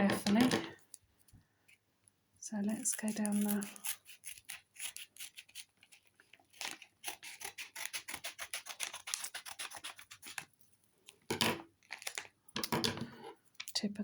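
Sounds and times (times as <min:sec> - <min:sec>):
scissors snipping packaging: 0:02.7 - 0:10.5, 0:11.9 - 0:12.3
packaging rustling: 0:11.8 - 0:12.4.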